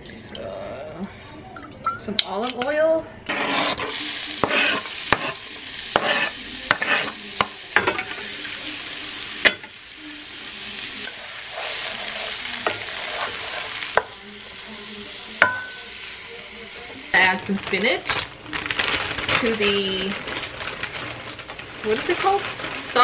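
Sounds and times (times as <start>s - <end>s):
wooden spoon scraping a pan: 3.3s - 8.2s, 11.0s - 14.1s
onion and sausage sizzling in pan: 3.3s - 23.0s.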